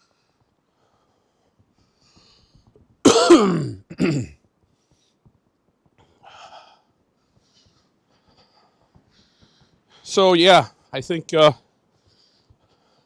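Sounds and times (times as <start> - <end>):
man clearing his throat: 3.1 - 4.4.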